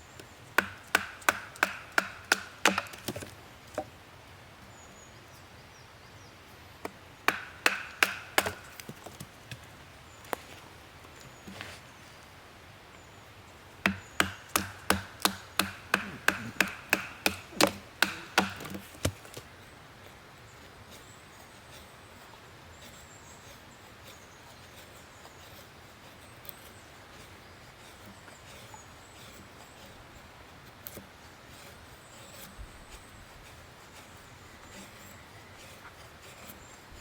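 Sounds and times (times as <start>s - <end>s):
chopping blows on wood: 0.6s - 3.9s, 6.8s - 9.6s, 13.8s - 19.5s.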